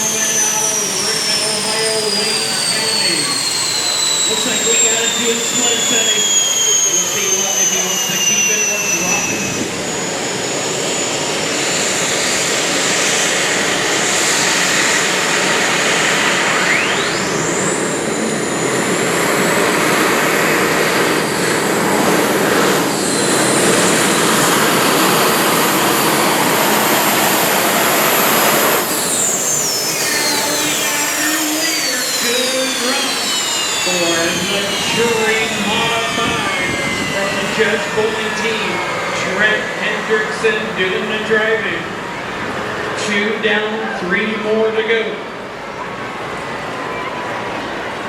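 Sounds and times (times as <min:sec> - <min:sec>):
turbocharger whistle: 0:00.0 - 0:44.0
pulling tractor engine: 0:17.0 - 0:43.1.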